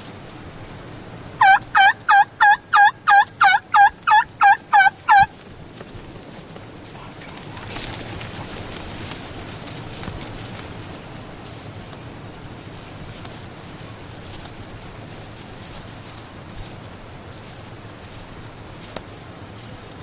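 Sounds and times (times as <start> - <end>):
steady background hiss: 0.0 - 20.0
turkey yelps: 1.4 - 5.3.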